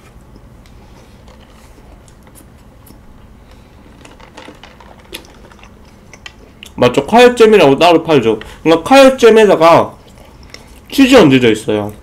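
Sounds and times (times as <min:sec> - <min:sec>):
faint chewing and mouth clicks: 0:00.2 - 0:06.8, 0:10.0 - 0:10.9.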